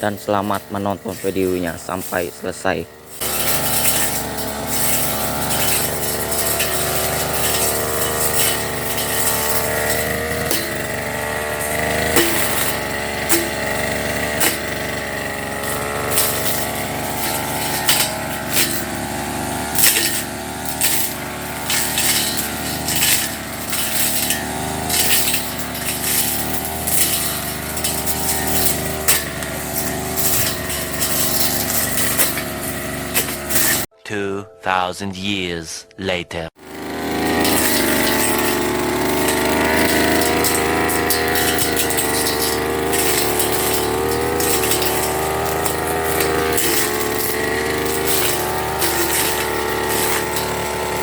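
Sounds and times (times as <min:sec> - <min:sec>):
brush cutter engine running: 0:00.0 - 0:33.9, 0:36.6 - 0:51.0
cutter striking grass: 0:00.0 - 0:33.9, 0:36.6 - 0:51.0.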